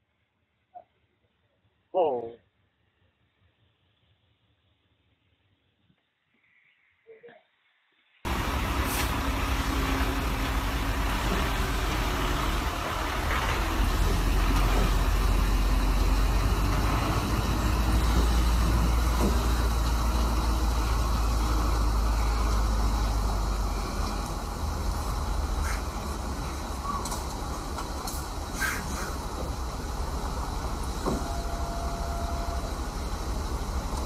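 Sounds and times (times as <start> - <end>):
motor vehicle rumbling: 8.2 - 34.0.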